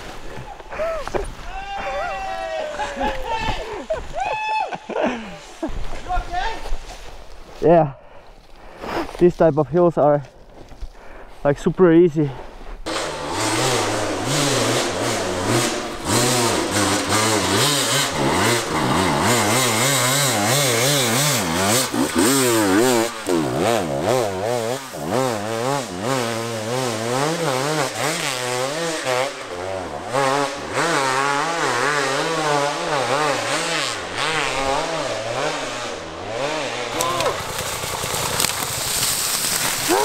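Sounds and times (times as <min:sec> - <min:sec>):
motorcycle engine revving: 0:12.9 - 0:40.0.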